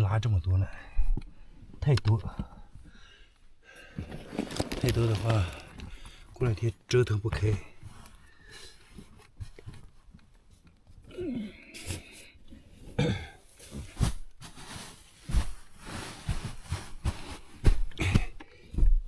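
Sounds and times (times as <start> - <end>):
rustling: 3.8 - 6.5, 13.5 - 17.9
knocks and thumps of belongings: 3.9 - 6.0, 15.2 - 19.0.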